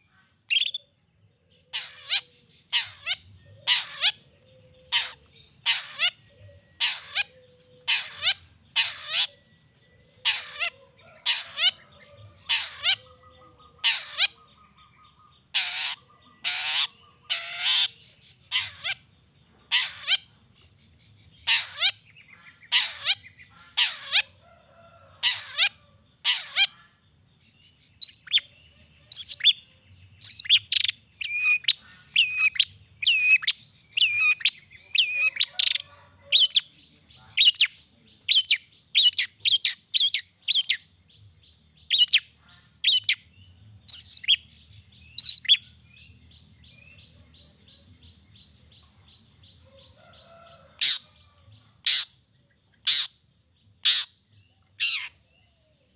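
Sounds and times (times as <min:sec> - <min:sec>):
harsh scratchy bird calls: 0:00.0 - 0:00.8, 0:01.6 - 0:09.4, 0:10.2 - 0:19.1, 0:19.7 - 0:20.3, 0:21.3 - 0:27.0, 0:30.2 - 0:40.9, 0:41.9 - 0:43.3, 0:43.9 - 0:44.6, 0:45.2 - 0:45.7, 0:50.1 - 0:53.2, 0:53.8 - 0:54.2, 0:54.8 - 0:55.3.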